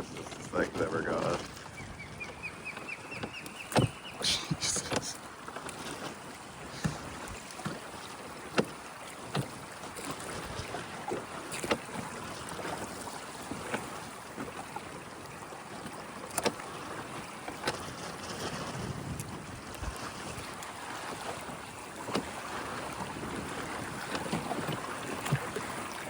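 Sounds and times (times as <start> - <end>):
water rushing past a boat: 0.0 - 26.0
knocks and slaps on hull: 0.1 - 4.3, 4.9 - 15.0, 15.8 - 26.0
wind on microphone: 17.8 - 20.6.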